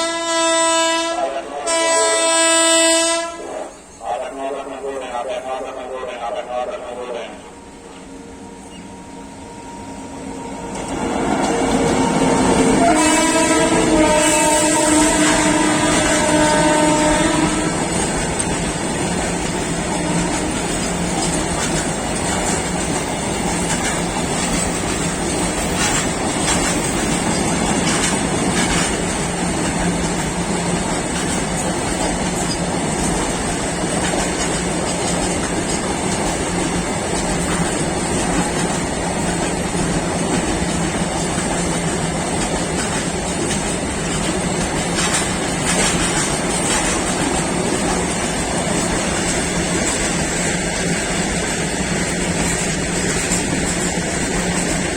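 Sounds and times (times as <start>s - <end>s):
train horn: 0.0s - 11.0s, 11.6s - 18.0s, 19.8s - 20.6s
freight train rumbling past: 0.0s - 54.9s
wheel clatter over rail joints: 20.3s - 50.2s.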